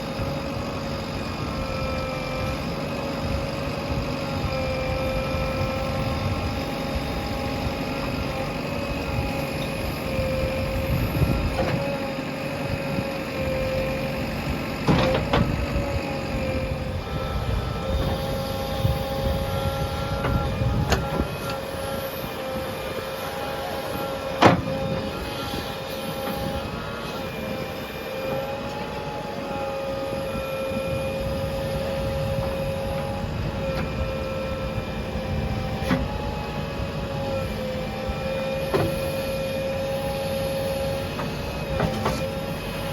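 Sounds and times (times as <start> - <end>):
backhoe loader engine rumble: 0.0 - 42.9
constant whine: 0.0 - 42.9.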